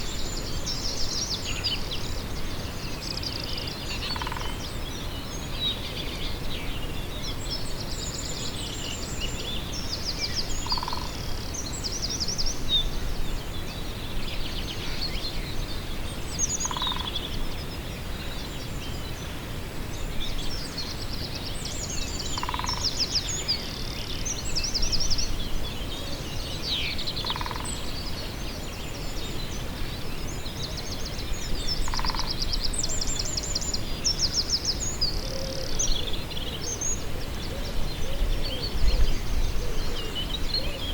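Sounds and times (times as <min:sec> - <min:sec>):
birds trilling and chirping: 0:04.1 - 0:04.9, 0:10.4 - 0:11.5, 0:22.1 - 0:40.9.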